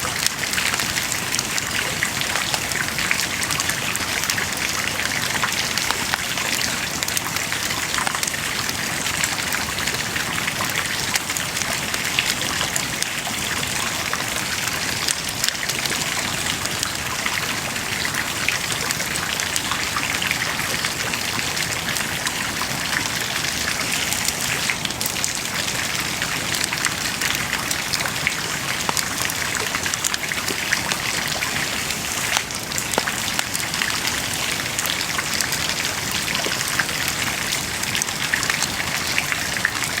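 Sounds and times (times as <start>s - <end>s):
bonfire crackling and popping: 23.6s - 36.8s.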